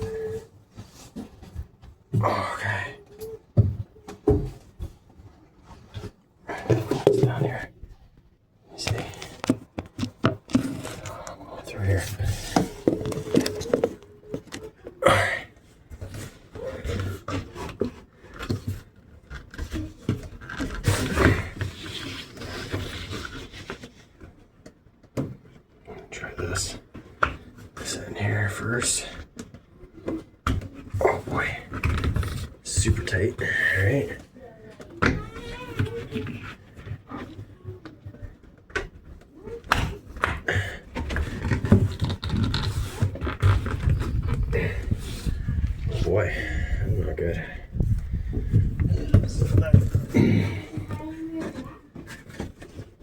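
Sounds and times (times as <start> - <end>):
scraping and rubbing: 39.8 - 53.0.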